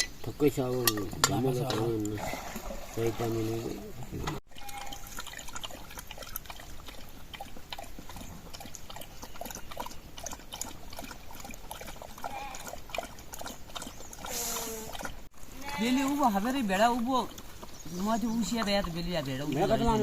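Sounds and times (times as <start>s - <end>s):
water trickling: 0.2s - 20.0s
sheep bleating faintly: 15.5s - 16.1s.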